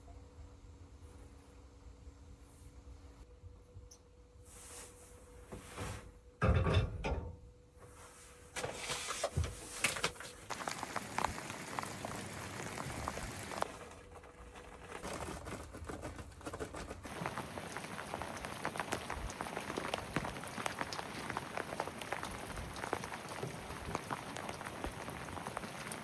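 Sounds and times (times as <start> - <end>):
heavy rain pattering: 10.4 - 13.8, 17.0 - 26.0.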